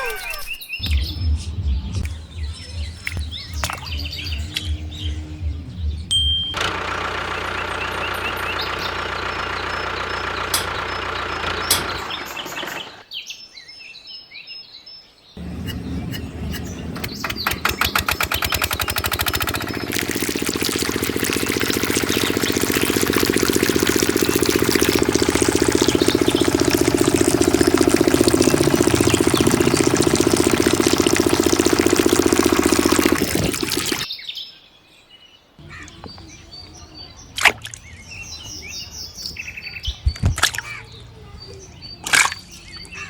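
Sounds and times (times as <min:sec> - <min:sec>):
birds chirping: 0:00.0 - 0:13.6, 0:15.0 - 0:43.0
small diesel engine running: 0:06.5 - 0:13.0, 0:15.4 - 0:34.1.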